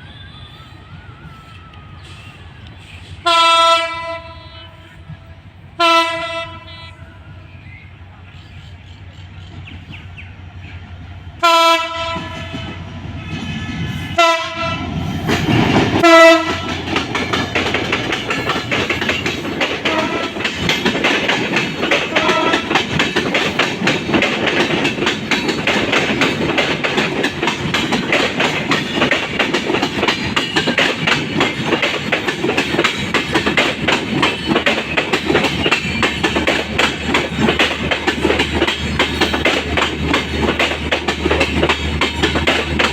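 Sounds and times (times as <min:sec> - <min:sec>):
train horn blasts: 0:03.2 - 0:07.5, 0:11.4 - 0:12.8, 0:14.1 - 0:15.0, 0:16.0 - 0:16.9, 0:19.8 - 0:20.5, 0:22.0 - 0:22.9
train wheels clattering: 0:11.8 - 0:42.9.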